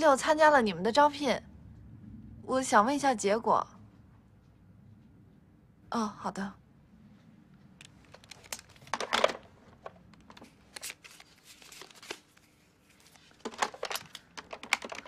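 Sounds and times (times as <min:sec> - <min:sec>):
paper rustling and crinkling: 0:08.0 - 0:15.0.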